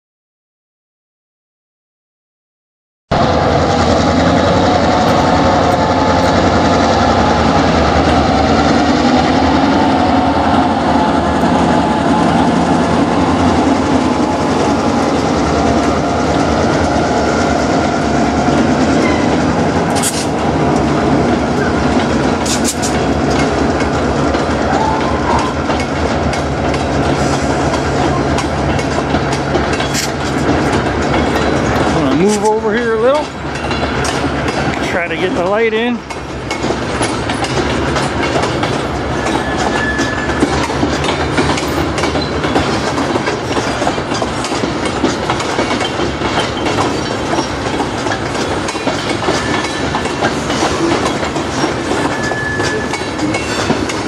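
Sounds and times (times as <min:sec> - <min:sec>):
diesel locomotive engine drone: 0:03.1 - 0:54.0
train wheels over rail joints: 0:03.2 - 0:54.0
sharp metallic clanks: 0:19.9 - 0:20.4.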